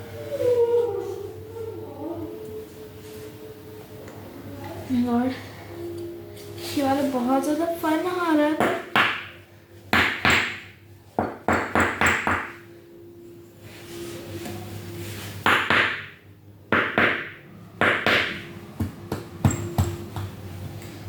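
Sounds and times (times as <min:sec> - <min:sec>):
faint steady hum: 0:00.0 - 0:10.0, 0:10.6 - 0:15.5.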